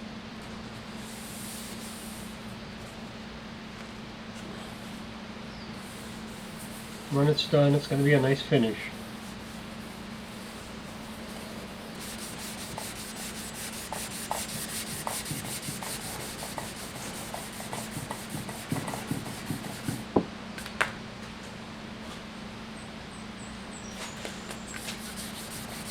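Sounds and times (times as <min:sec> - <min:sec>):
steady low hum: 0:00.0 - 0:25.9
sandpaper rubbing wet finish: 0:01.1 - 0:02.3, 0:05.8 - 0:20.1, 0:24.7 - 0:25.9.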